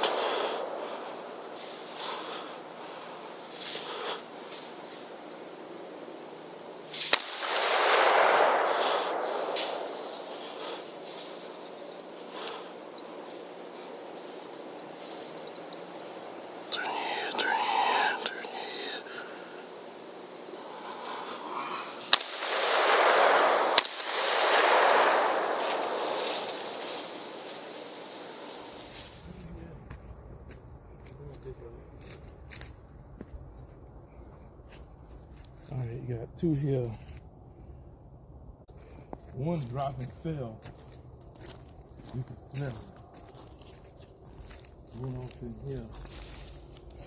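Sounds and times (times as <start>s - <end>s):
noise after gunshot: 0.0s - 1.0s, 6.9s - 11.5s, 22.0s - 29.2s
noisy rush of sound: 0.0s - 30.8s
rifle shot: 6.8s - 11.4s, 22.0s - 29.2s.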